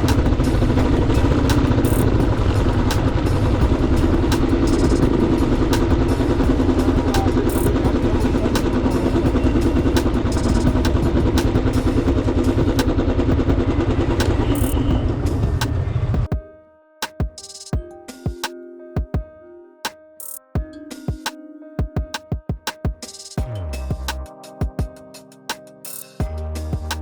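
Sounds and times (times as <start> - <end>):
motorcycle engine running: 0.0 - 16.2.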